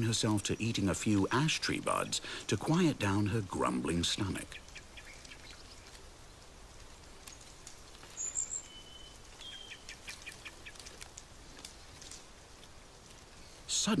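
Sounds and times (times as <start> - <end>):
faint steady hiss: 0.0 - 14.0
small birds chirping: 0.0 - 14.0
thin bird whistles: 8.2 - 9.9.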